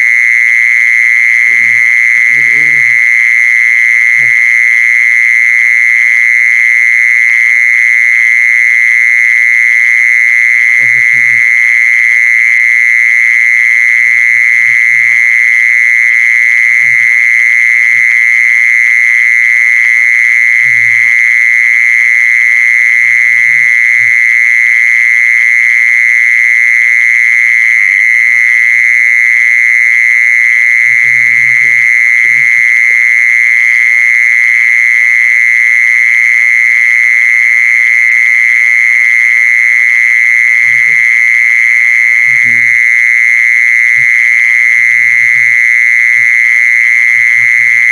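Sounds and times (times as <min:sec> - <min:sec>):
insect high-pitched trill: 0:00.0 - 0:08.5, 0:09.4 - 0:47.9
faint murmurs: 0:01.5 - 0:03.0.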